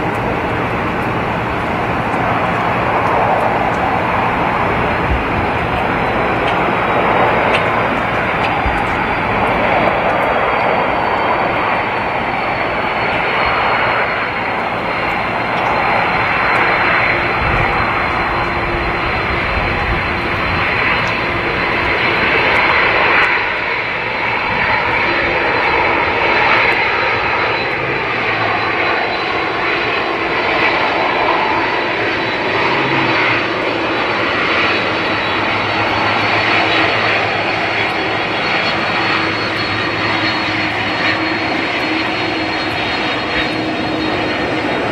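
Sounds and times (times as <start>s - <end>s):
airliner engines roaring: 0.0s - 44.9s
thin high whine: 0.0s - 44.9s.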